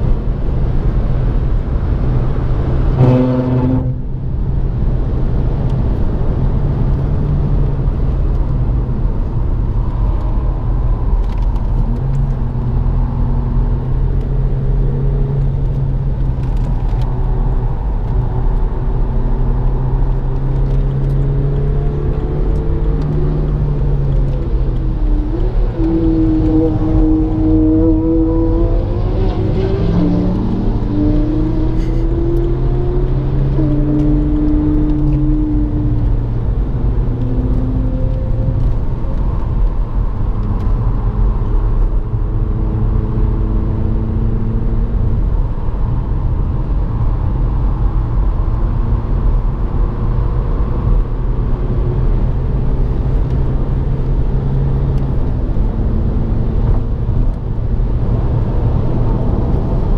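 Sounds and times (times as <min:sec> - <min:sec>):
car engine accelerating: 0:00.0 - 0:59.9
tyre and road rumble: 0:00.0 - 0:59.9.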